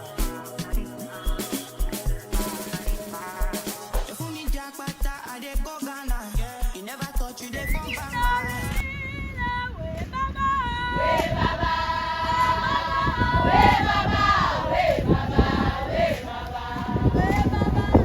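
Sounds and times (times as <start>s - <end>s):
group singing in chorus: 0.0s - 8.8s, 10.6s - 18.0s.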